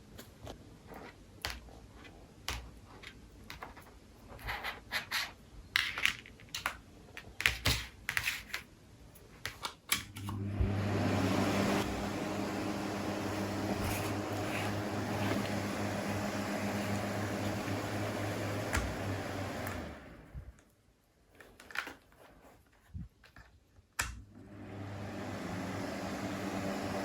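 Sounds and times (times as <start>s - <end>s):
small fan running: 10.1s - 20.6s.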